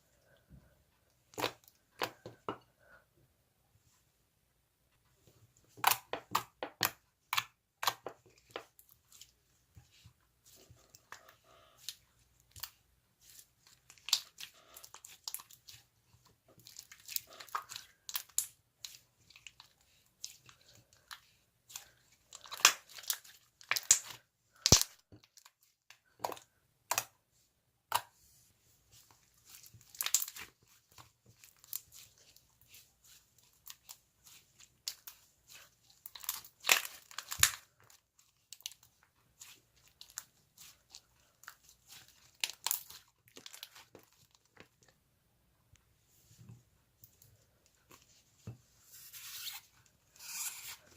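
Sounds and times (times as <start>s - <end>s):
slime squishing and crackling: 5.7s - 27.2s, 28.9s - 44.8s.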